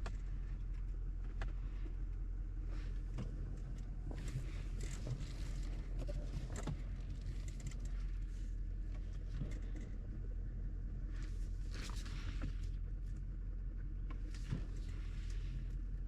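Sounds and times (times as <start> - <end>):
low machine hum: 0.0 - 16.0
clicks and light clatter: 3.1 - 10.2.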